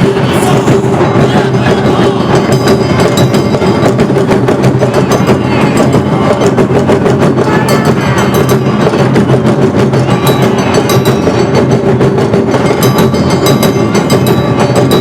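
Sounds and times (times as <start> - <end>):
drums: 0.0 - 15.0
held tone: 0.0 - 15.0
small hand gongs: 1.6 - 15.0.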